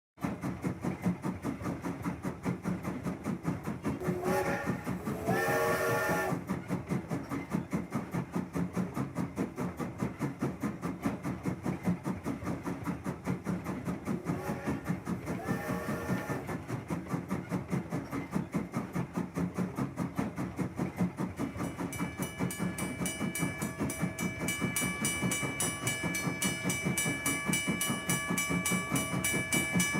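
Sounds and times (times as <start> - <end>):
steam locomotive chuffing: 0.2 - 29.9
steam whistle blasts: 4.0 - 6.4, 14.2 - 16.5.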